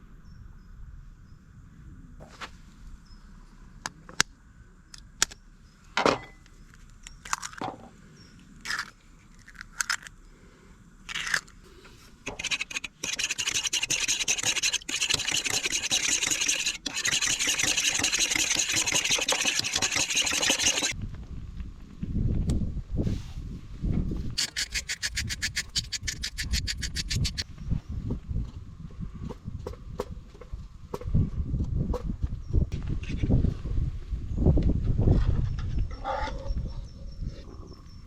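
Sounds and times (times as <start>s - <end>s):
fast scraping and rubbing: 11.1s - 21.0s, 24.3s - 27.5s.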